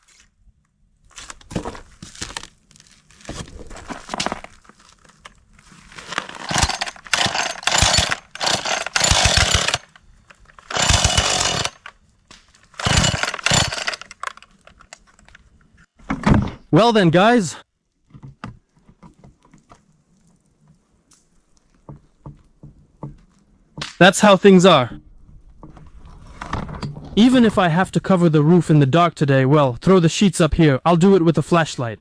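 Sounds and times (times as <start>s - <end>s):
power saw cutting: 6.4s - 9.9s, 10.6s - 11.9s, 12.8s - 14.4s.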